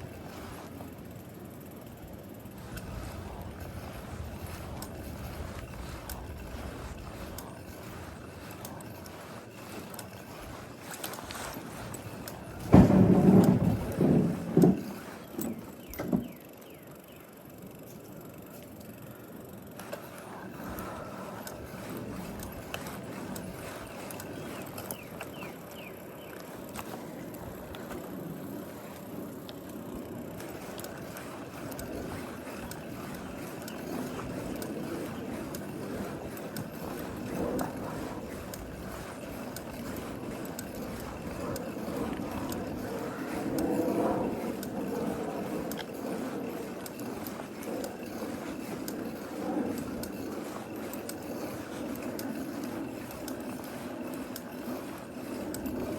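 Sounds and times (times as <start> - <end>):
small clicks and knocks: 10.8 - 16.7.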